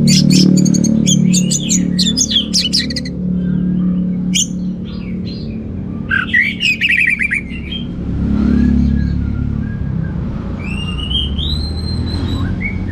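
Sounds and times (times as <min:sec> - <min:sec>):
thrush singing: 0:00.0 - 0:07.8.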